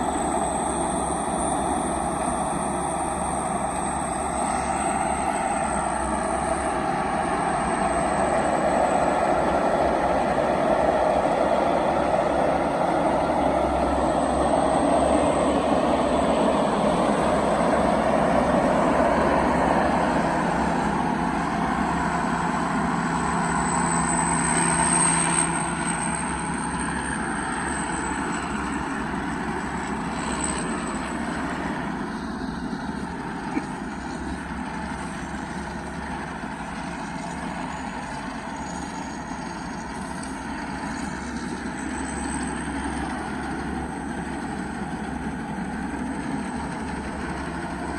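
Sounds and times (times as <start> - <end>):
diesel engine running hard: 0.0 - 47.9.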